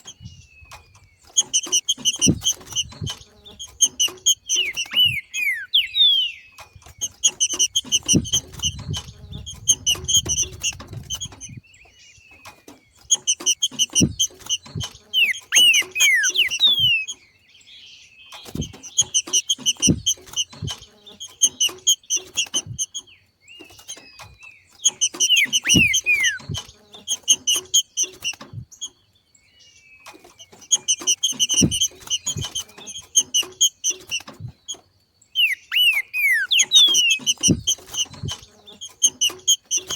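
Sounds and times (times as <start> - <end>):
bird chattering call: 1.2 - 11.6, 13.1 - 17.2, 24.8 - 28.4, 35.3 - 39.9
downward-sliding bird whistles: 1.4 - 11.6, 13.1 - 17.2, 24.9 - 28.6, 35.4 - 39.9.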